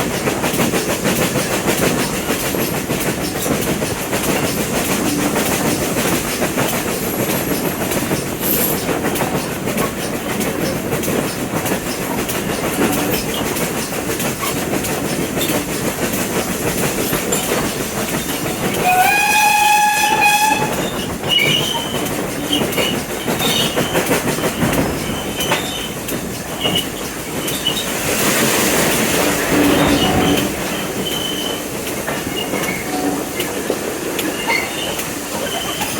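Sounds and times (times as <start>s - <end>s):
train rumbling on track: 0.0s - 35.9s
train horn blast: 18.8s - 20.8s.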